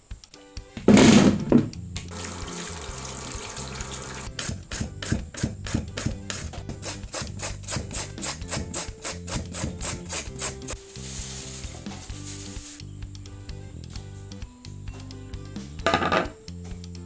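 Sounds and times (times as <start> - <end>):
background music: 0.0 - 17.0
sweet potato being grated: 4.2 - 11.8.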